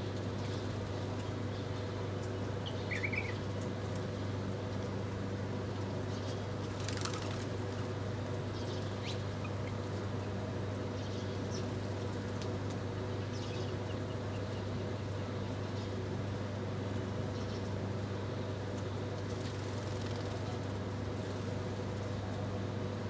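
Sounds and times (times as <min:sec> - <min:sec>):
small birds chirping: 0:02.6 - 0:03.5, 0:13.2 - 0:14.8.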